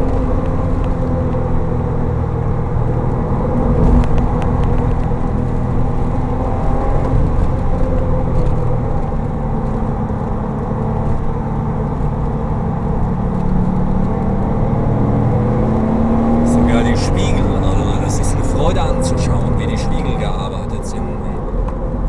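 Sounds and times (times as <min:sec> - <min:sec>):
tyre and wind noise: 0:00.0 - 0:17.0
car engine drone: 0:00.0 - 0:22.0.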